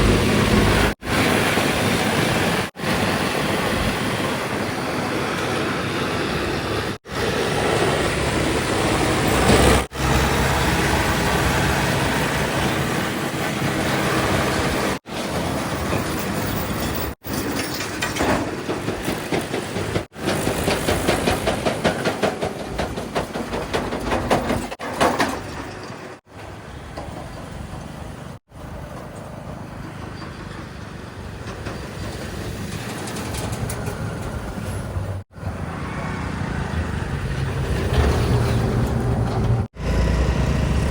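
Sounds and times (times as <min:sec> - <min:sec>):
heavy diesel machinery running: 0:00.0 - 0:40.9
rattling and clattering: 0:15.8 - 0:28.0, 0:31.4 - 0:35.2, 0:37.4 - 0:39.7.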